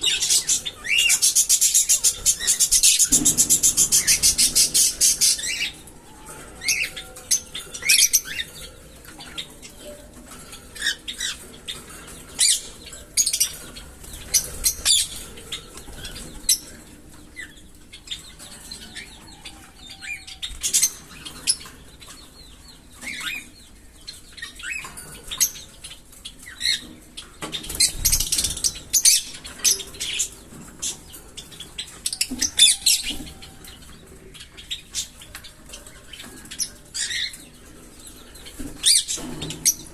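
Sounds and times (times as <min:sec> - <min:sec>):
parrots chirping: 0:00.0 - 0:39.9.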